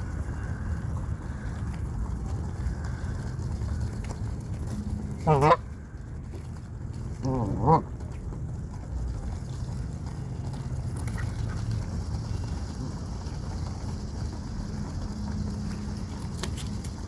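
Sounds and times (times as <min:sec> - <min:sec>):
waterfowl call: 0:05.0 - 0:05.8, 0:07.2 - 0:07.9.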